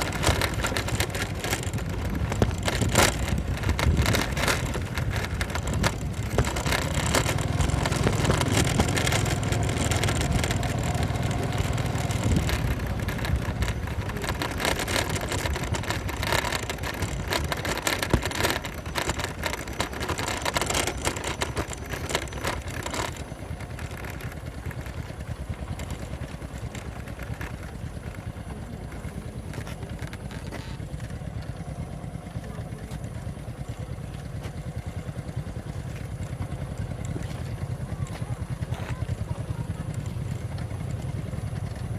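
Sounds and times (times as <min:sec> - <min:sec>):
rattles and knocks: 0:00.0 - 0:33.4
motorcycle engine on rough road: 0:00.0 - 0:41.9.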